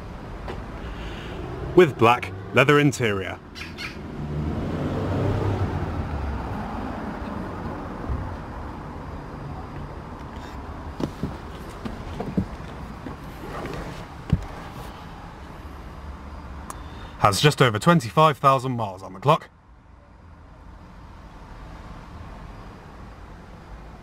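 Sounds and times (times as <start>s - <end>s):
car engine running: 7.2s - 16.4s.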